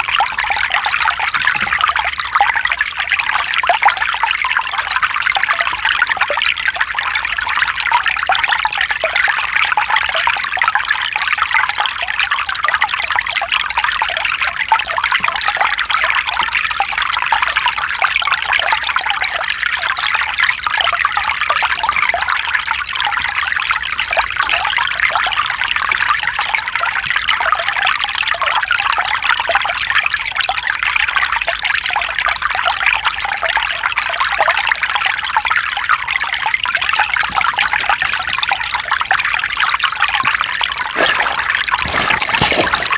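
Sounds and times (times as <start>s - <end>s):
stream flowing over stones: 37.0s - 42.9s.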